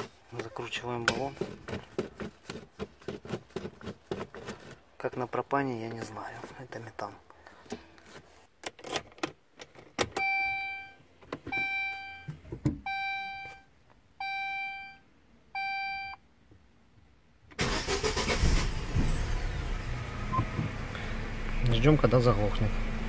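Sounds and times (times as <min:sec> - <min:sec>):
car engine starting and running: 0:17.5 - 0:23.0.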